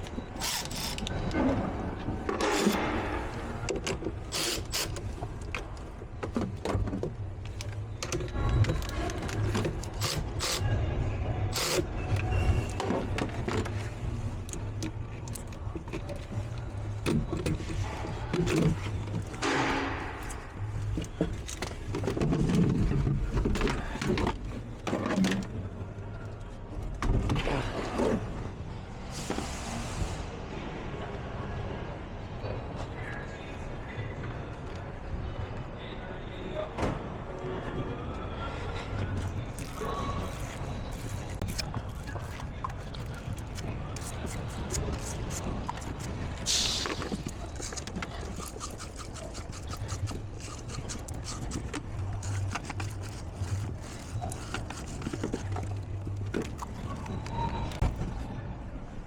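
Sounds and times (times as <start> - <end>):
clicks and clattering of hand work: 39.1 - 58.1
scraping or rustling: 39.6 - 58.0.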